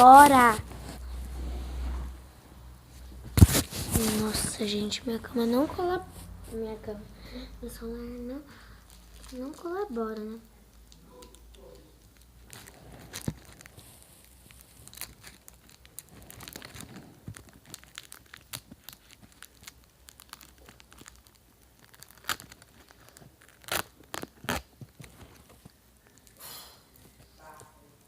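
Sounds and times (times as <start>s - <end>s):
snack wrappers crinkling: 8.5s - 27.2s.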